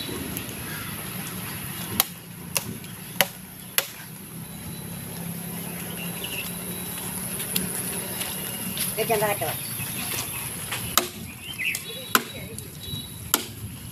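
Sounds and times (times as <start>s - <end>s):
axe chopping wood: 2.0s - 4.0s, 11.0s - 11.3s, 12.1s - 12.5s, 13.3s - 13.6s.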